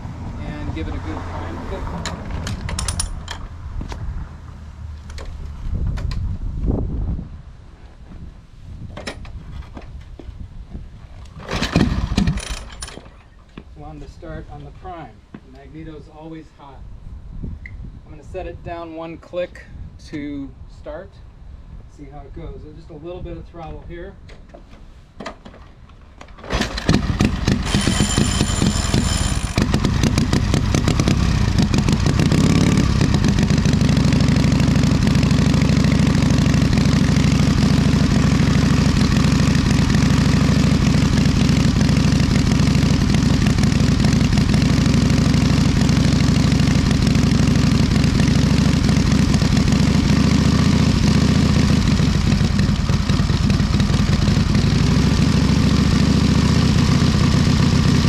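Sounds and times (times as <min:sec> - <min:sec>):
motorcycle engine starting and idling: 0:00.4 - 0:04.1, 0:11.2 - 0:13.6, 0:25.6 - 0:58.0.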